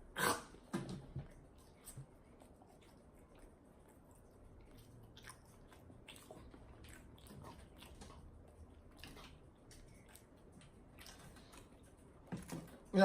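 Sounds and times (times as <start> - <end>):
chewing food: 0.1 - 13.0.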